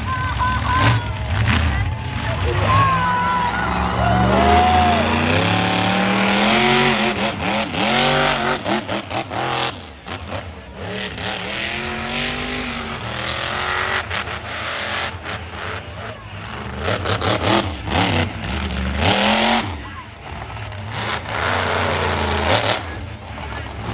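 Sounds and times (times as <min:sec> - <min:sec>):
truck engine revving: 0:00.0 - 0:23.9.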